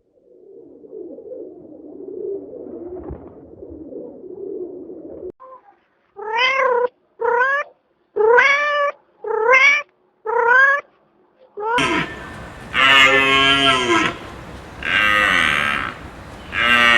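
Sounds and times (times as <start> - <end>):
low rough murmuring: 11.8 - 16.9.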